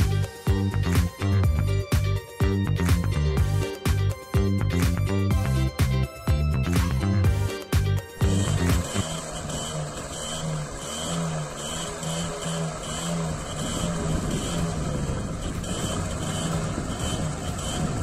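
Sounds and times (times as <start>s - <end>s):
moped engine running: 0.0s - 18.0s
pulsing background music: 0.0s - 18.0s.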